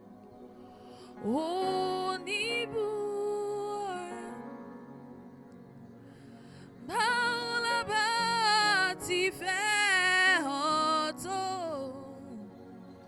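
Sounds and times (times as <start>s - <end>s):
soft sustained accompaniment: 0.0s - 13.0s
person singing with vibrato: 1.1s - 4.5s, 6.9s - 12.5s.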